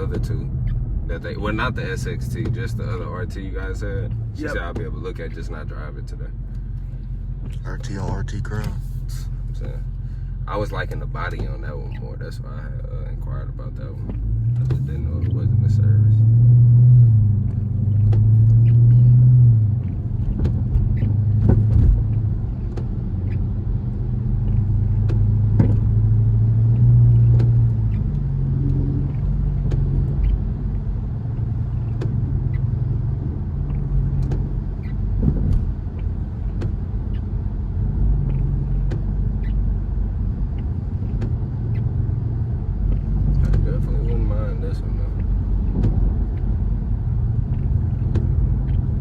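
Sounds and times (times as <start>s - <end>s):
car engine hum from cabin: 0.0s - 49.0s
light ticks: 40.2s - 49.0s.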